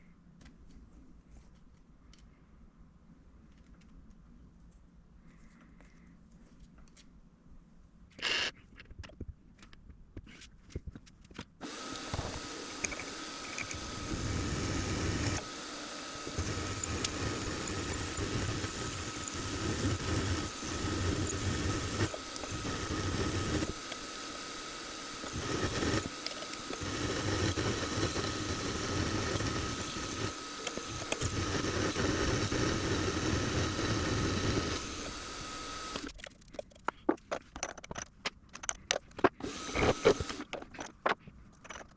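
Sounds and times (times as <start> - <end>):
machine tool whining: 11.6 - 36.2, 39.2 - 40.6.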